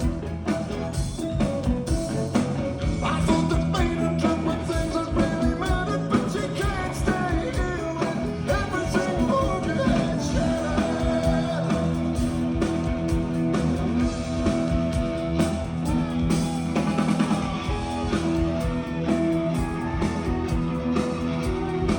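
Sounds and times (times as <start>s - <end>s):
rock band playing: 0.0s - 21.9s
lead singer singing: 3.0s - 12.3s.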